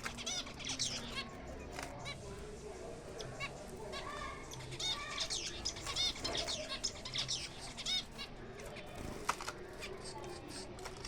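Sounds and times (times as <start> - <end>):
finches chirping: 0.0 - 2.3, 4.2 - 8.2.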